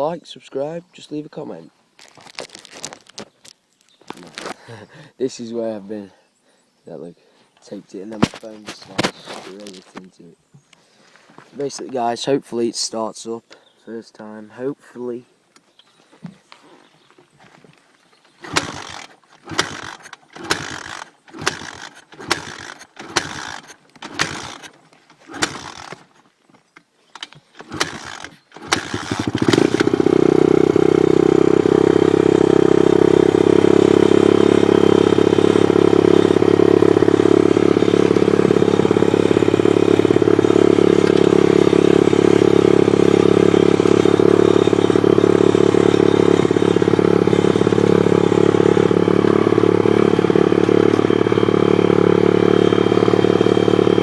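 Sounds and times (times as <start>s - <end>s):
motorbike engine cranking: 18.3s - 26.3s, 27.0s - 54.0s
motorbike engine running: 18.4s - 26.1s, 27.6s - 54.0s.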